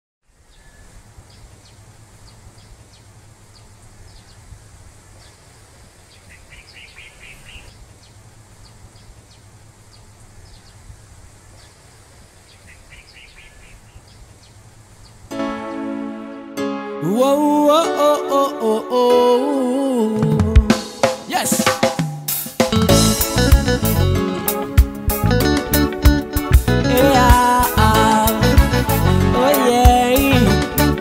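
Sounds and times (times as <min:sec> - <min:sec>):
small birds chirping: 0:00.3 - 0:15.8.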